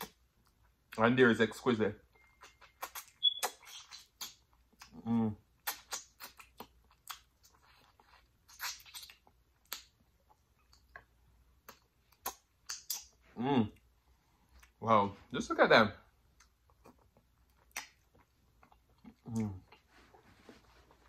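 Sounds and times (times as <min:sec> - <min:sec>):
wet lip smacks while chewing: 0:02.2 - 0:05.0, 0:05.6 - 0:13.2, 0:16.4 - 0:19.8.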